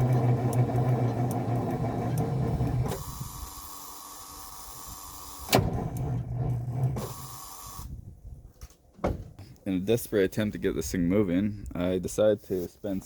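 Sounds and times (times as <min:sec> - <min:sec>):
starter motor cranking: 0:00.0 - 0:07.9.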